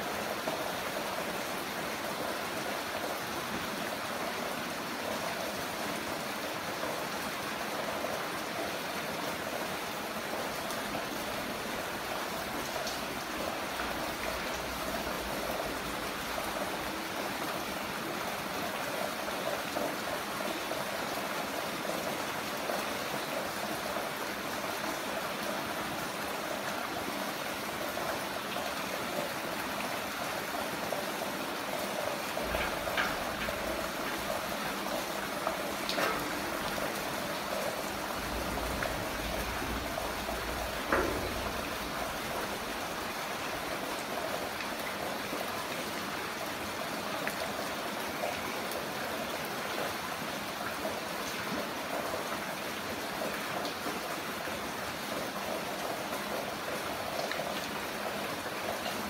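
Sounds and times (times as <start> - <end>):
sharp drips and splashes: 0.0 - 59.0
heavy rain hissing: 22.6 - 44.6.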